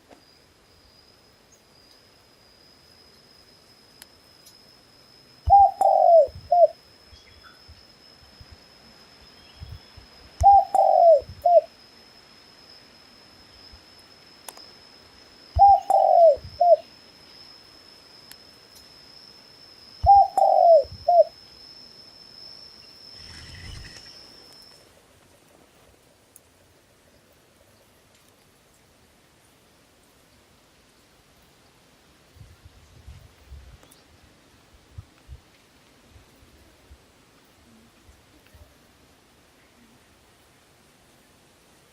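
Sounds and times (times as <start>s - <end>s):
dove cooing: 5.5s - 6.8s, 10.4s - 11.7s, 15.6s - 16.8s, 20.0s - 21.3s.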